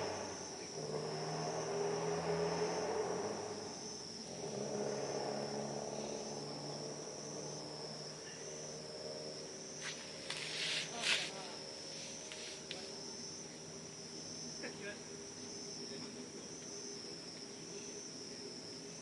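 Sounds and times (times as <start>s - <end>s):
crickets trilling: 0.0s - 19.0s
low drone: 0.0s - 19.0s.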